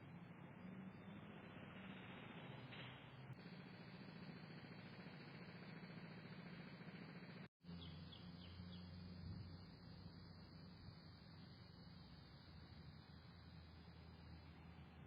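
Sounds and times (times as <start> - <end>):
finch chirps: 7.7 - 9.8.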